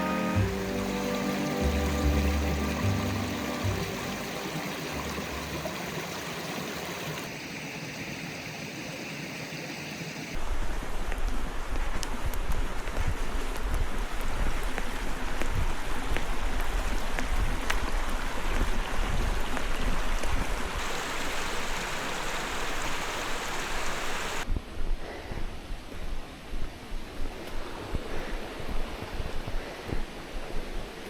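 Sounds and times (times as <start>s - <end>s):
flowing water rushing: 0.0s - 10.4s, 13.3s - 24.4s.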